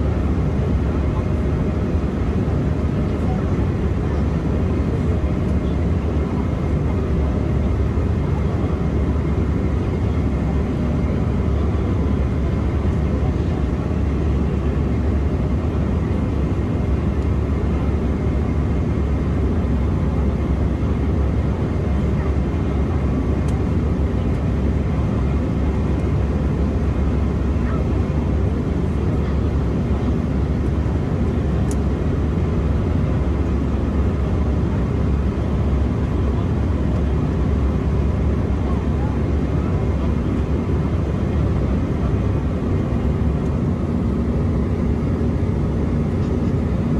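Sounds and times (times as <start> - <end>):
airliner cabin engine rumble: 0.0 - 46.9
airflow over fuselage: 23.0 - 46.9.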